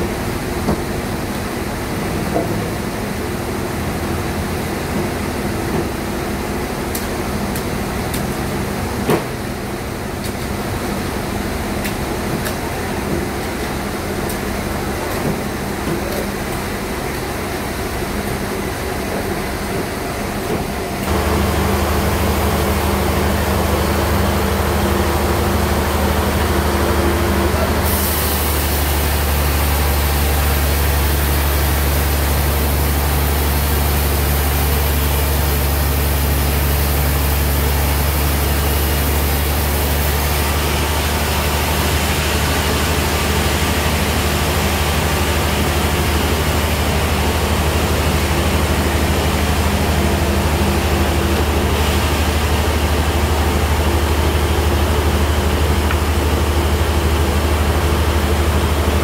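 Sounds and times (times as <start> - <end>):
deep motor hum: 21.0 - 59.0.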